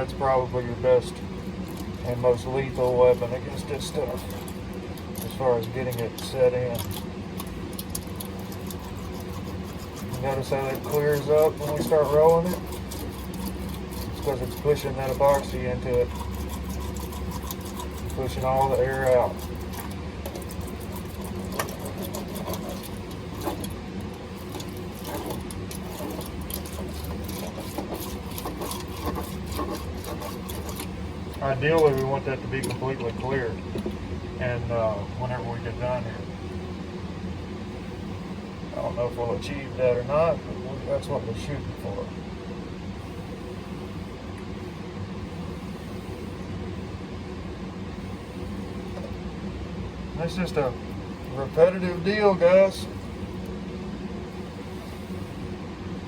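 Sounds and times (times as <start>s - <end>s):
low machine hum: 0.0s - 56.0s
roller clicking and rubbing: 1.7s - 32.8s.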